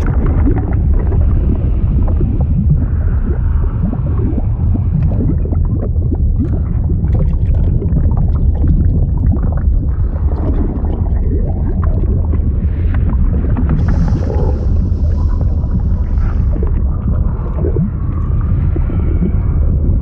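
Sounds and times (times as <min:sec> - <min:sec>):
liquid bubbling and gurgling: 0:00.0 - 0:20.0
low rumble: 0:00.0 - 0:20.0
bubble pops: 0:04.9 - 0:09.8.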